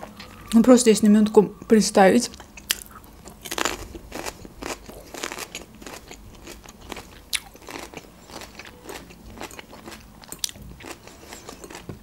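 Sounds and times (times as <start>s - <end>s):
person chewing food: 2.3s - 12.0s.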